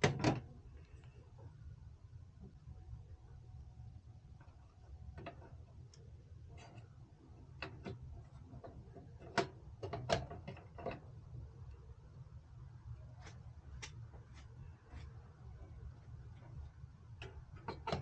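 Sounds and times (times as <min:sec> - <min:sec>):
steady low hum: 0:00.0 - 0:18.0
clicks and knocks of hardware: 0:06.6 - 0:11.1, 0:17.2 - 0:18.0.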